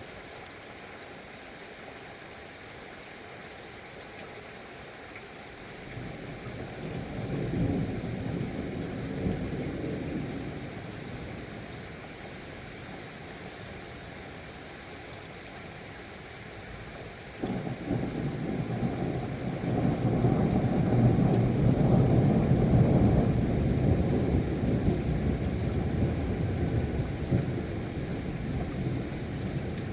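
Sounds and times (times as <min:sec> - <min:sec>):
steady rain: 0:00.0 - 0:29.9
thunder rolling: 0:17.4 - 0:29.9.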